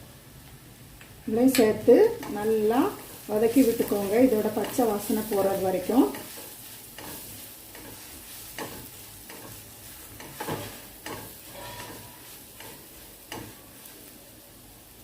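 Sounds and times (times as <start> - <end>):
masala sizzling in oil: 1.1 - 15.0
spatula scraping a pan: 2.2 - 14.0.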